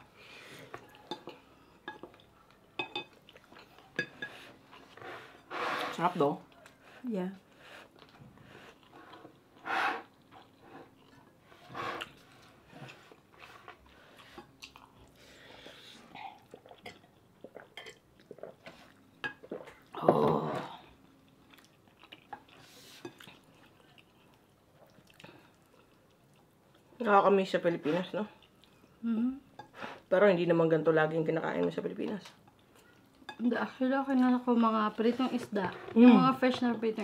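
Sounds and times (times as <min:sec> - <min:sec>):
chewing food: 0:07.8 - 0:11.4, 0:12.0 - 0:20.0, 0:20.9 - 0:27.0.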